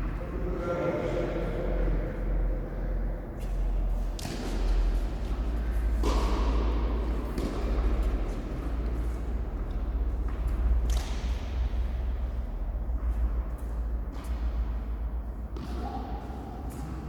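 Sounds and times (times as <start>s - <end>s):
tennis ball hit by racket: 5.9s - 9.0s.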